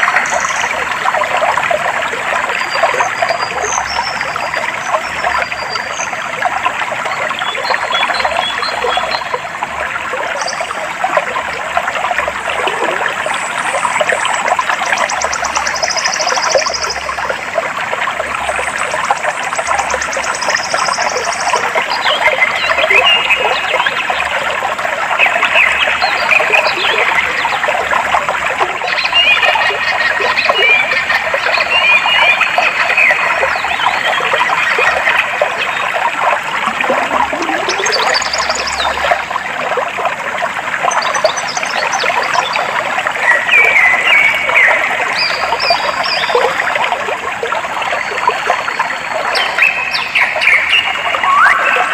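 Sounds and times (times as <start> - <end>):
water flowing and trickling: 0.0 - 51.9
birds chirping: 36.6 - 39.0.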